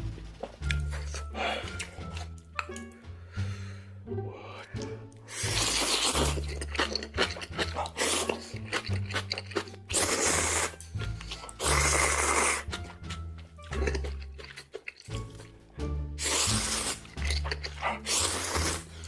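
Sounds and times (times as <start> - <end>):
background music with bass: 0.0 - 19.0
wet chewing clicks: 0.4 - 3.0, 4.8 - 15.6, 16.2 - 18.9
noodle slurping: 4.7 - 15.5, 16.2 - 19.0.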